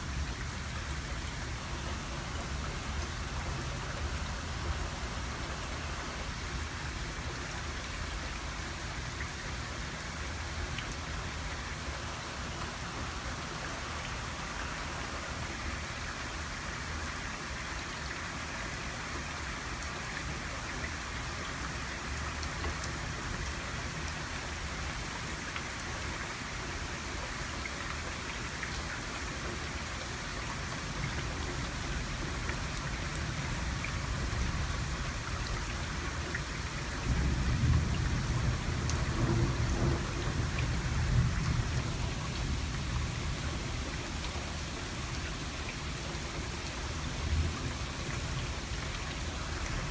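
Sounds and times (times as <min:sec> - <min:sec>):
steady rain hiss: 0:00.0 - 0:49.9
low rolling thunder: 0:37.0 - 0:43.7.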